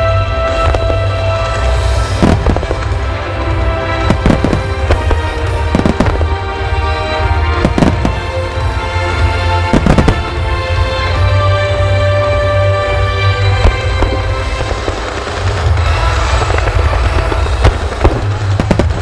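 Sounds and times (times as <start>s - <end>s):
firework shells bursting: 0.7s - 3.1s.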